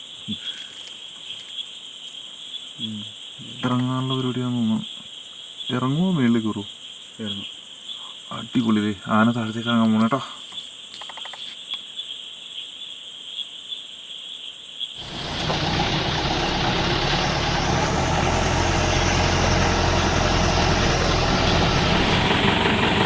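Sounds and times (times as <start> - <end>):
crickets chirping: 0.0 - 23.0
jeep engine running: 15.0 - 23.0.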